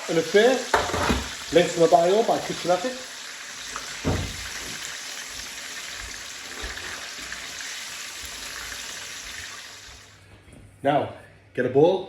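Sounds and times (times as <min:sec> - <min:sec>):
chicken deep-frying in oil: 0:00.0 - 0:10.2.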